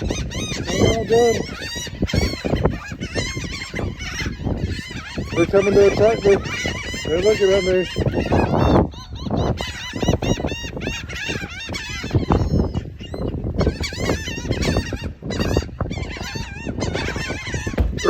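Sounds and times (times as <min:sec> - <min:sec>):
gulls crying: 0:00.0 - 0:18.0.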